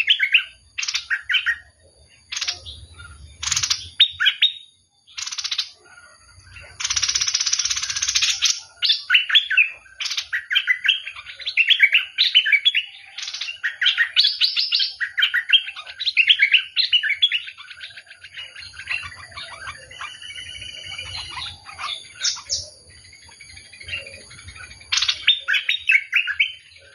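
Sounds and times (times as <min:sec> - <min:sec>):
bird harsh chattering: 0:00.0 - 0:22.8, 0:23.9 - 0:26.7
bird whistled notes: 0:18.5 - 0:22.7.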